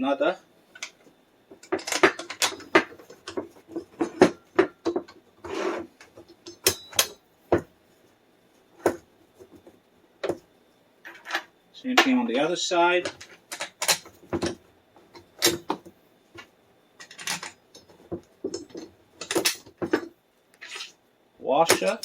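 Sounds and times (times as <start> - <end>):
parts clicking and knocking: 0.8 - 7.8, 13.0 - 20.9, 21.6 - 22.0
short rubbing scrape: 5.4 - 5.9, 20.6 - 21.0.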